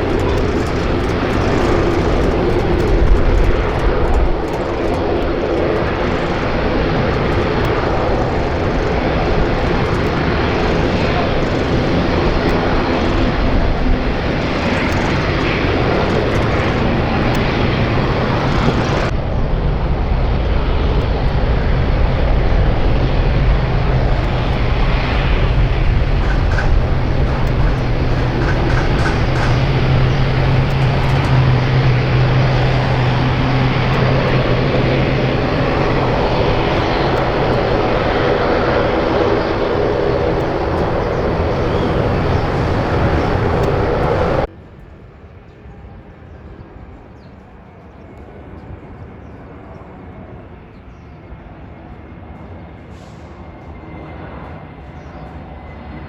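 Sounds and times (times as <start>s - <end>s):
jet engines running: 0.0s - 44.5s.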